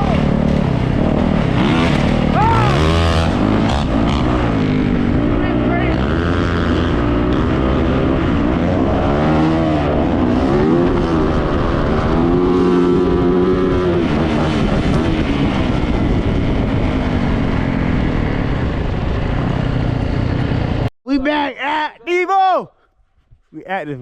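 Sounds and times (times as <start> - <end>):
dirt bike engine revving: 0.0 - 16.1.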